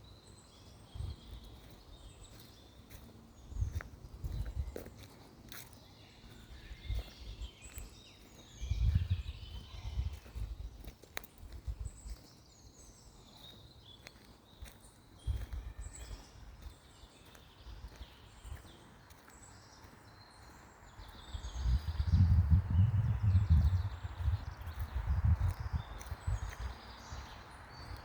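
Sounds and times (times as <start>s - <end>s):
small birds singing: 0.0s - 28.0s
wind buffeting microphone: 3.5s - 5.0s, 6.7s - 7.5s, 8.5s - 12.2s, 21.0s - 28.0s.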